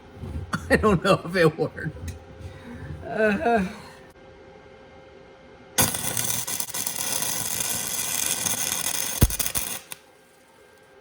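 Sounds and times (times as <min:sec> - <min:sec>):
welder arc crackling: 0:05.8 - 0:10.1.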